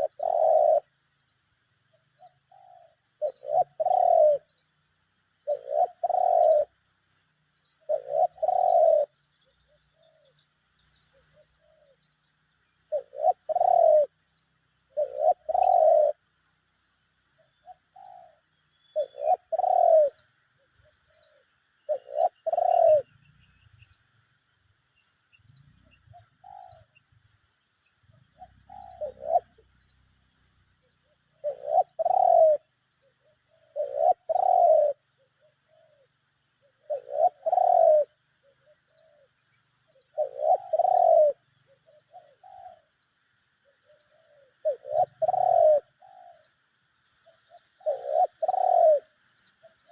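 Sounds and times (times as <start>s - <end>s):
doves cooing: 0.0s - 0.9s, 2.2s - 4.5s, 5.4s - 6.8s, 7.8s - 9.2s, 12.9s - 14.2s, 14.9s - 16.3s, 17.6s - 23.2s, 28.1s - 29.8s, 31.0s - 42.9s, 43.6s - 46.6s, 47.2s - 49.9s
small birds chirping: 0.0s - 49.9s.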